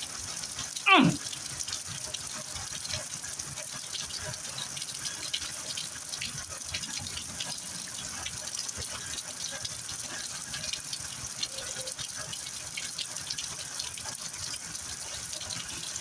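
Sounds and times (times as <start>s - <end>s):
heavy rain falling: 0.2s - 1.4s.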